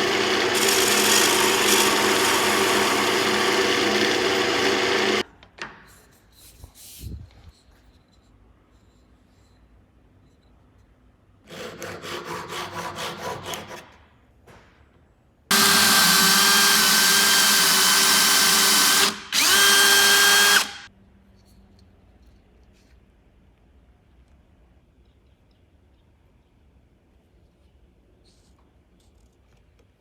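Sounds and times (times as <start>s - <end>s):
electric power tool running: 0.0s - 5.2s, 15.5s - 20.9s.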